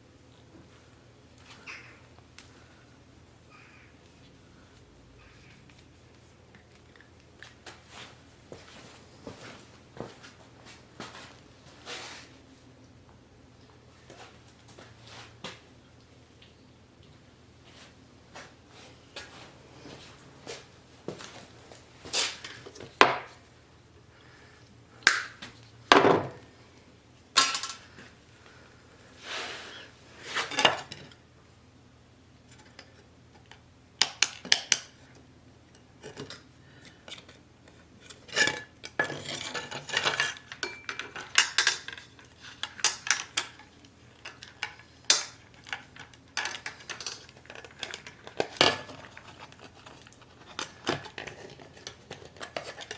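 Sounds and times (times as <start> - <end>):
metal tools clinking and clattering: 27.4 - 27.9, 38.4 - 43.6.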